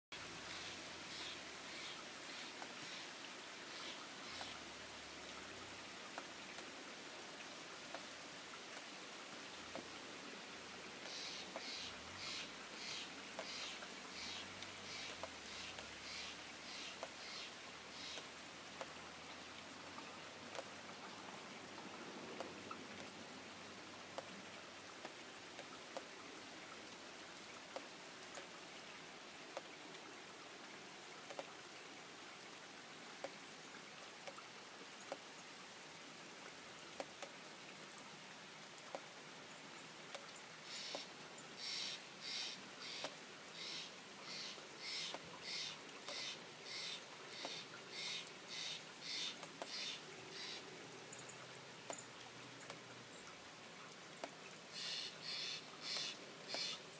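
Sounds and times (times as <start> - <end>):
steady rain falling: 0.1 - 56.9
sharp drips: 38.6 - 56.9
bird calling: 41.6 - 50.6, 54.8 - 56.8.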